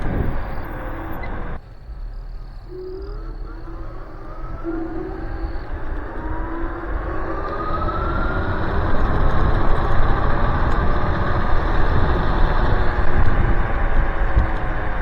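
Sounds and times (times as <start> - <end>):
electric scooter motor whine: 0.0 - 15.0
road rumble: 0.0 - 15.0
wind noise: 0.0 - 15.0.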